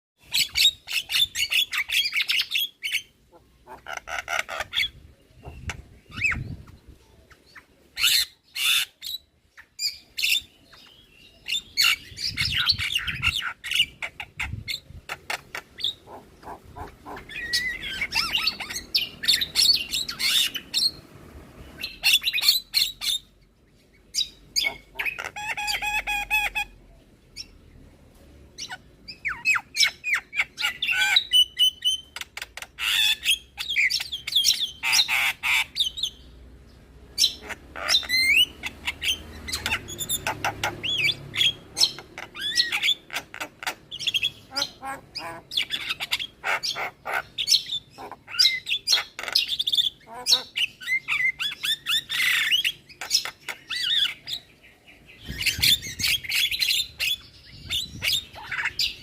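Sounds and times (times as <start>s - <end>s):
myna chirps whistles and squawks: 7.4s - 21.0s, 24.2s - 26.8s, 37.2s - 54.5s, 55.2s - 59.0s.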